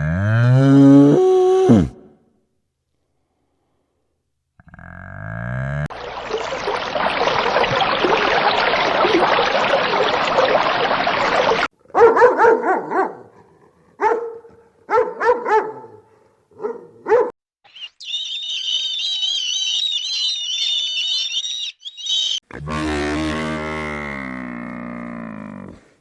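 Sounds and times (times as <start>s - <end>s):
dog barking: 11.9s - 13.4s, 14.0s - 17.4s
high wavering chirping: 17.7s - 22.4s.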